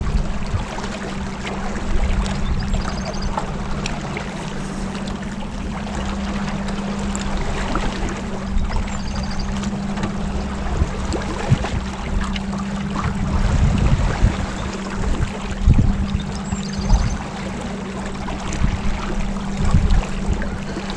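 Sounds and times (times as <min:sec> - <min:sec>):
boat engine humming: 0:00.0 - 0:20.9
water rushing along hull: 0:00.0 - 0:20.9.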